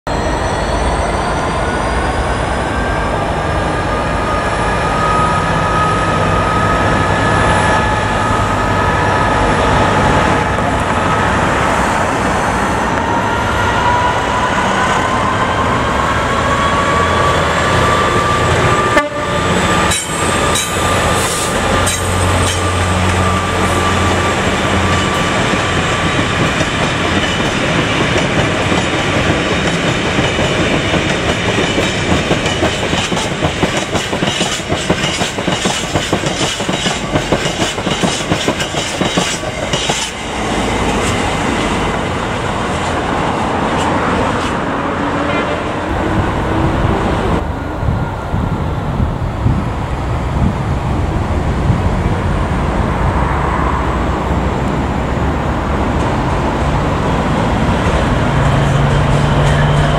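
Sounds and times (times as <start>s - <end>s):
diesel locomotive engine: 0.1s - 59.9s
rail rumble: 0.1s - 59.9s
wagons clacking over rail joints: 24.8s - 40.3s.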